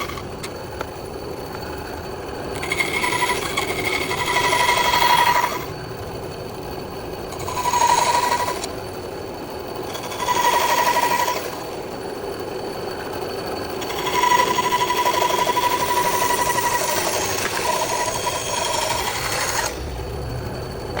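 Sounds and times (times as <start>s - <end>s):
bandsaw cutting wood: 9.9s - 11.6s, 13.8s - 19.9s.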